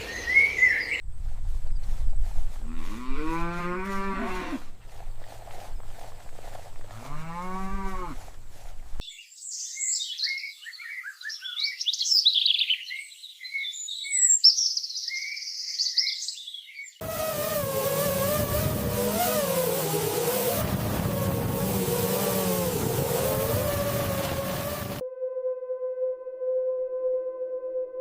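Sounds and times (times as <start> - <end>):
birds chirping and trilling: 0.0 - 1.0, 8.5 - 17.0
cow mooing: 2.6 - 4.7, 6.9 - 8.3
engine with wavering hum: 17.0 - 25.0.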